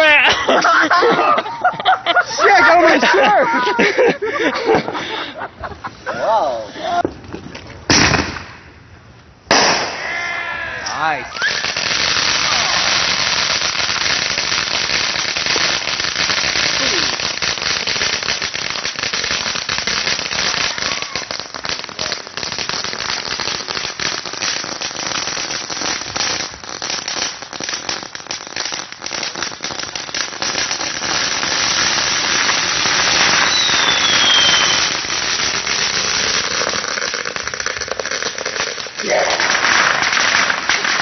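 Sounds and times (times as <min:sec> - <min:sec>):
fireworks crackling and popping: 0:00.0 - 0:00.8, 0:06.8 - 0:41.0
falling firework whistle: 0:09.5 - 0:13.3, 0:32.4 - 0:35.1.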